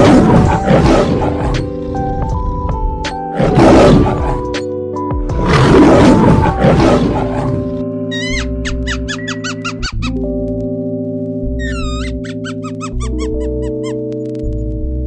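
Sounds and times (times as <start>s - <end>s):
background music with held tones: 0.0s - 15.0s
lioness calling: 5.5s - 10.2s.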